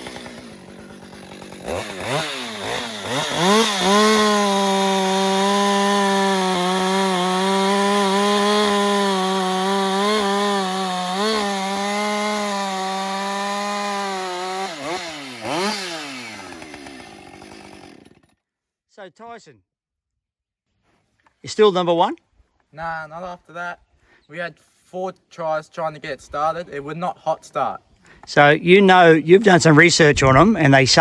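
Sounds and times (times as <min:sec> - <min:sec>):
chainsaw revving: 0:00.0 - 0:18.3.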